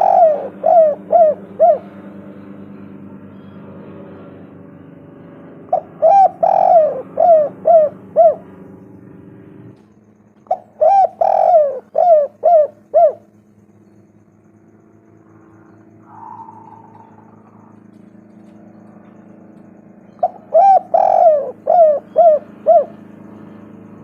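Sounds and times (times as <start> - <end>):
dove cooing: 0.0 - 2.8, 5.7 - 8.7, 10.4 - 13.4, 15.4 - 19.5, 20.1 - 24.0
steady low hum: 0.0 - 24.0.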